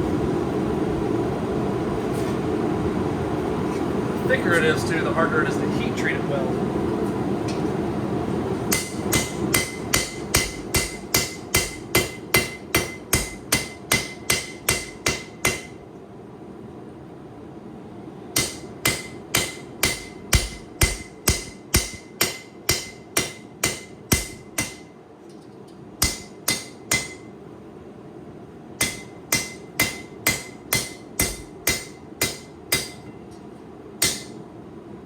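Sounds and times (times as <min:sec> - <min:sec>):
hammer striking metal on anvil: 0:08.7 - 0:15.8, 0:18.4 - 0:24.9, 0:26.0 - 0:27.3, 0:28.8 - 0:34.4.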